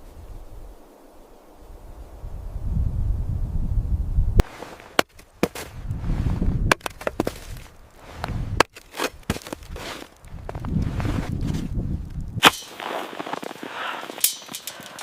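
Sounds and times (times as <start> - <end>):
sharp cracks and snaps: 6.7 - 10.8, 12.0 - 15.0.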